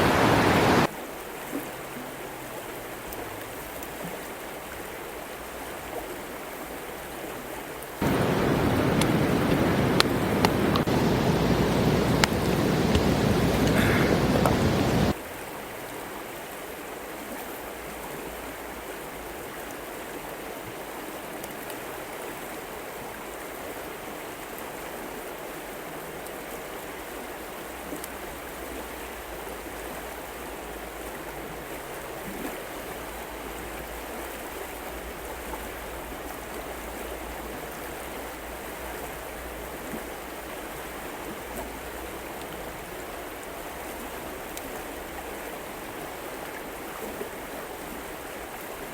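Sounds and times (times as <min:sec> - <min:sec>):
river flowing: 0:00.0 - 0:06.2, 0:08.0 - 0:15.2, 0:29.4 - 0:48.9
faint clicks: 0:08.0 - 0:15.1.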